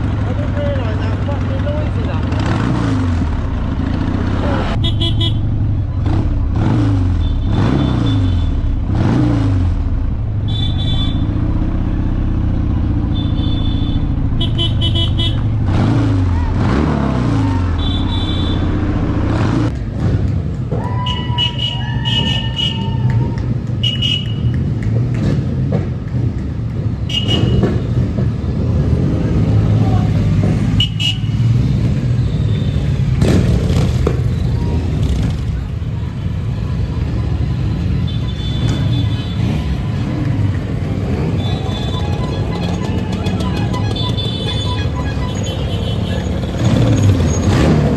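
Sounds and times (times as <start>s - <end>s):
motorcycle engines revving: 0.0s - 47.9s
horn toots: 4.6s - 9.4s, 10.4s - 12.1s, 12.8s - 19.7s, 21.0s - 23.2s, 23.8s - 24.8s, 27.0s - 28.2s, 30.6s - 33.8s, 36.6s - 47.9s
high-pitched horn toot: 13.0s - 15.5s, 41.4s - 46.8s.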